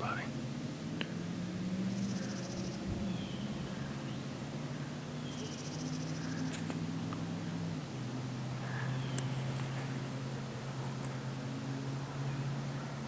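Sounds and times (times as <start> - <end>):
steady low hum: 0.0 - 13.0
small birds trilling: 1.7 - 6.8, 8.6 - 10.0.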